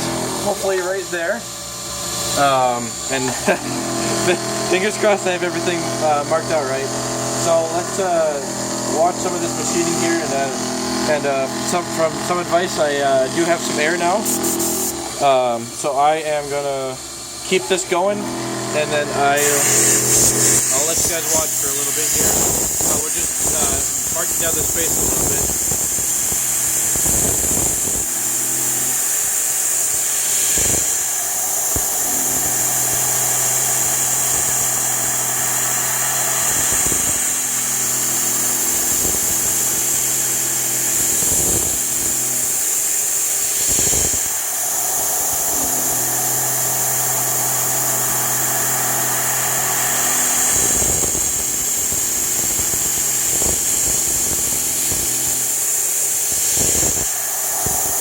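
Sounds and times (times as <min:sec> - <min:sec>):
milling machine cutting: 0:00.0 - 0:58.0
low pitched machine hum: 0:30.9 - 0:42.7, 0:44.2 - 0:55.6.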